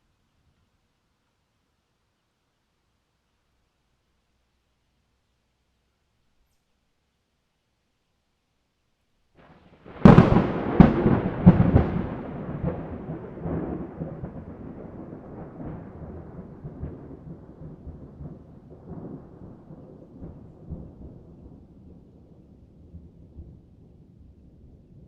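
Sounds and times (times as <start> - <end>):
thunder crack and rumble: 9.4 - 25.0.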